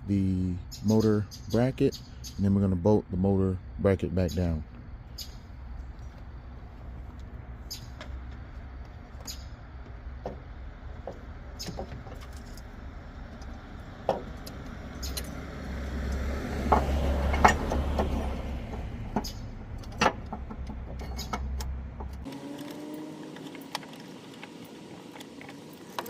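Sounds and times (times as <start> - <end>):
low steady hum: 0.0 - 26.0
metal parts and tools clanking: 11.0 - 15.4, 16.7 - 26.0.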